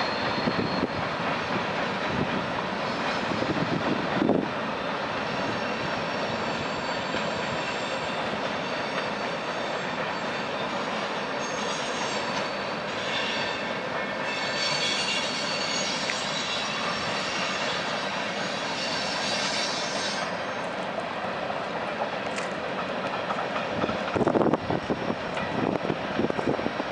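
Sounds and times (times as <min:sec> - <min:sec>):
high-pitched wheel squeal: 0:00.0 - 0:01.2, 0:05.3 - 0:20.8
train wheels rumbling on rail: 0:00.0 - 0:26.9.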